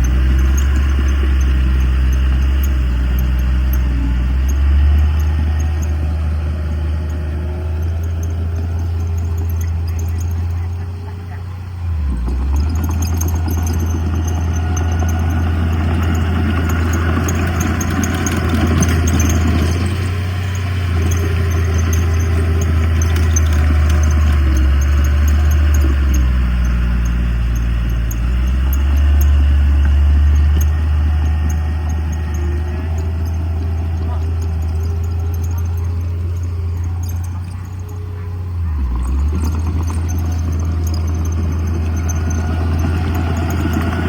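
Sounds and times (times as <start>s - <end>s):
diesel engine droning: 0.0s - 44.0s.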